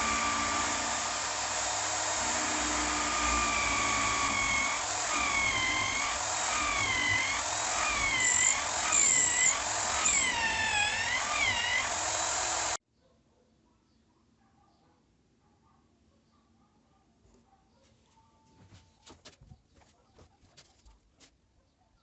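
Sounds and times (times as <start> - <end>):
power tool motor whining: 0.0 - 12.8.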